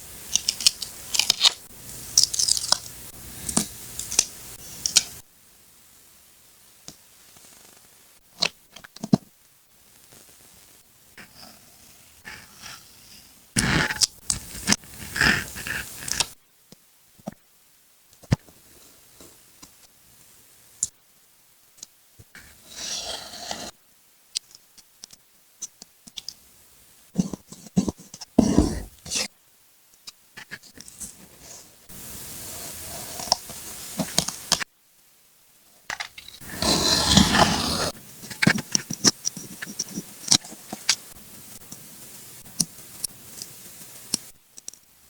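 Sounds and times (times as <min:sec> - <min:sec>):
scraping hiss: 0:22.3 - 0:23.8, 0:30.4 - 0:34.7, 0:36.2 - 0:44.4
paper rustling and scraping: 0:22.6 - 0:23.7, 0:32.4 - 0:34.6, 0:36.2 - 0:41.2.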